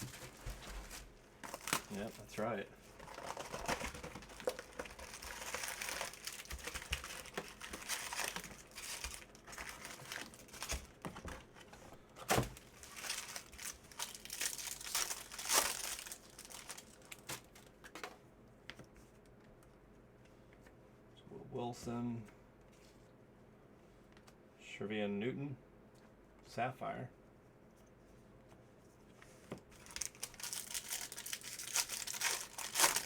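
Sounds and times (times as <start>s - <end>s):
foil wrappers crinkling and tearing: 0.0s - 11.4s, 12.2s - 17.9s, 29.7s - 33.0s
sharp wrapper rips: 29.8s - 33.0s.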